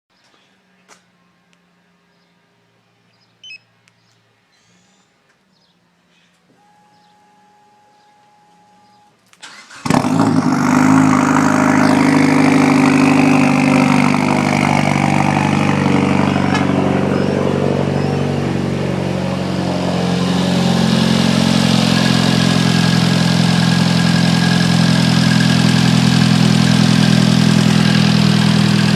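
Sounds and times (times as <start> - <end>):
engine cranking: 8.7 - 12.6
loud engine idle: 9.9 - 28.9.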